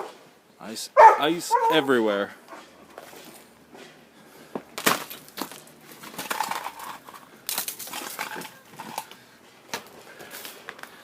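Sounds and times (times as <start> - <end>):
dogs barking: 1.0 - 1.9.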